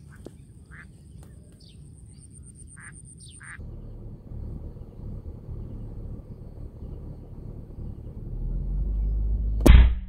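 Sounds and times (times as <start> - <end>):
short bird calls: 0.0 - 3.6
low rumble: 3.6 - 10.0.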